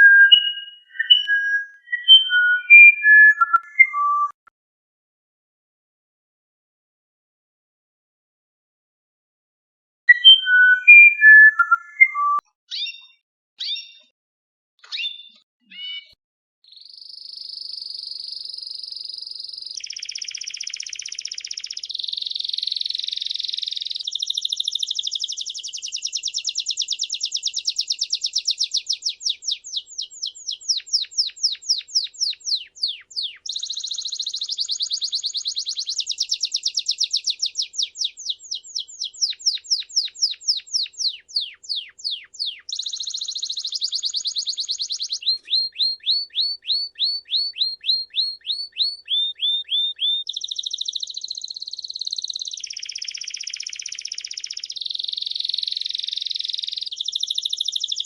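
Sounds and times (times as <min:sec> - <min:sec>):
songbird high trill: 0:00.0 - 0:04.3, 0:16.8 - 0:58.0.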